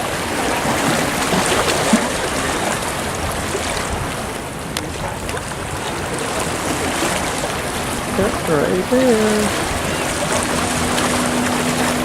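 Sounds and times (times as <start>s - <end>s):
surf at water's edge: 0.0s - 12.0s
wind: 0.0s - 12.0s.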